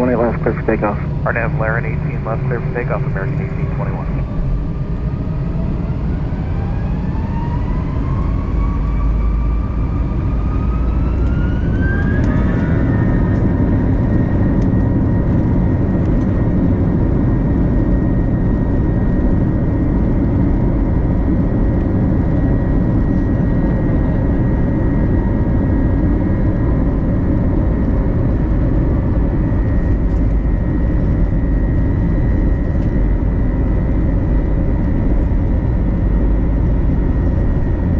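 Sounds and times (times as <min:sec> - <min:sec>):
jet engines spooling up: 0:00.0 - 0:16.4.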